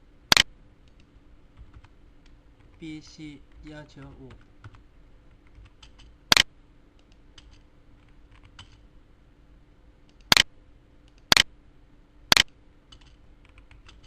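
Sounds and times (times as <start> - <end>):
loud sharp computer clicks: 0.3 - 1.1, 5.6 - 7.6, 10.1 - 10.5, 11.1 - 11.5, 12.3 - 14.0.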